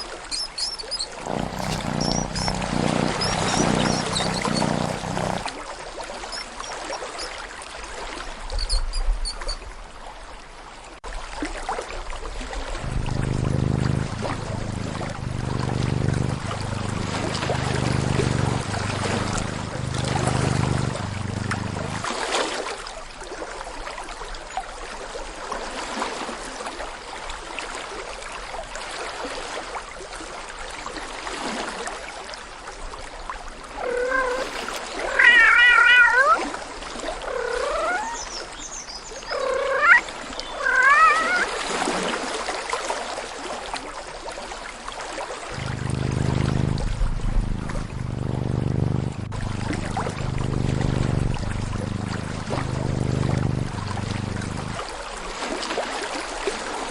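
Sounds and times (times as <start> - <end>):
low pulsing hum: 0.0 - 5.5, 12.8 - 22.2, 45.6 - 55.1
trickle of running water: 0.0 - 9.7, 30.6 - 38.2, 39.1 - 56.9
cat meowing: 33.7 - 36.5, 39.4 - 40.0, 40.6 - 41.5.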